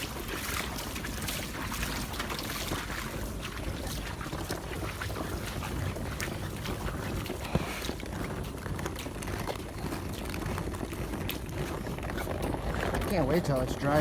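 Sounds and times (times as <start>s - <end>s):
wading through shallow water: 0.0s - 14.0s
water splashing and sloshing: 0.0s - 14.0s.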